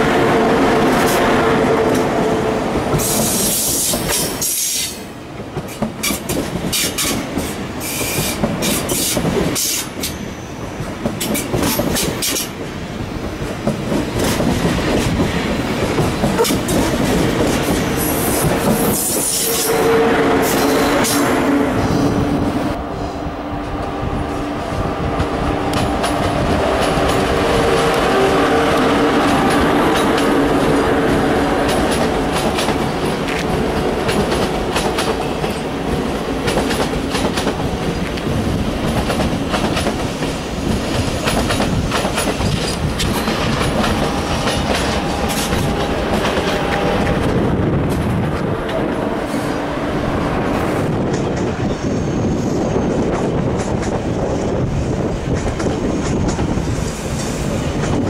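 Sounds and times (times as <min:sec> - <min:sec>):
train whine: 0:00.0 - 0:58.0
train wheels clacking over rail joints: 0:02.8 - 0:19.8, 0:31.6 - 0:49.6.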